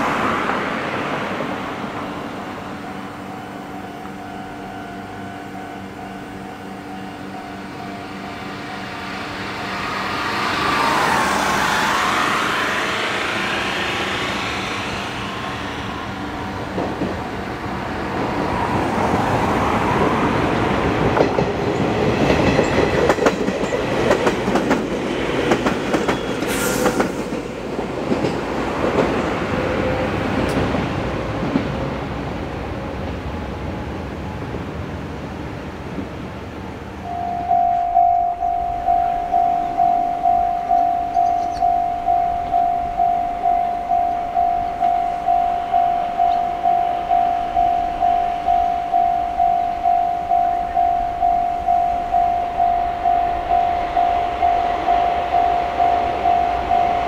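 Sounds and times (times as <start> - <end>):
electric train humming: 0.0 - 57.0
wheels clacking over rail joints: 20.0 - 31.8.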